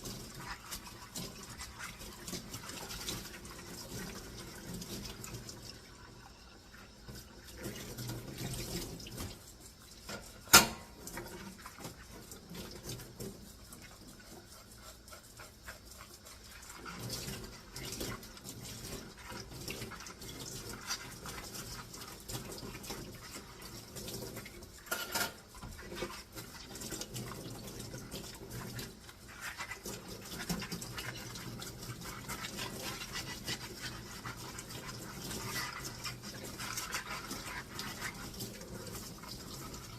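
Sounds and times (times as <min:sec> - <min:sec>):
scrubbing dishes: 0:00.0 - 0:05.8, 0:06.7 - 0:39.9
running water at a sink: 0:00.0 - 0:39.9
dishware clattering: 0:24.9 - 0:25.4.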